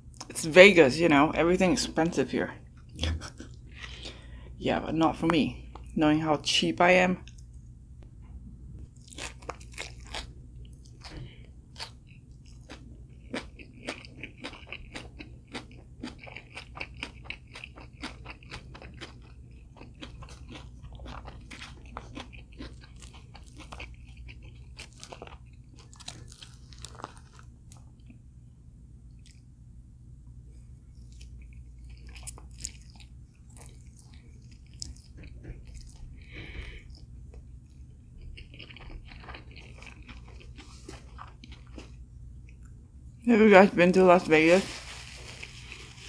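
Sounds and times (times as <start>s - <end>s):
crunching crispy food: 9.0s - 28.2s, 31.0s - 42.0s, 44.5s - 46.0s.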